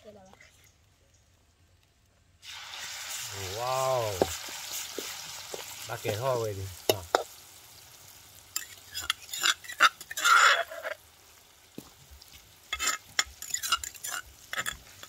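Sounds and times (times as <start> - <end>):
food sizzling: 1.6 - 15.0
metal ladle scraping a wok: 8.5 - 11.0, 12.7 - 15.0
spoon in stone mortar: 8.6 - 11.0, 12.7 - 15.0.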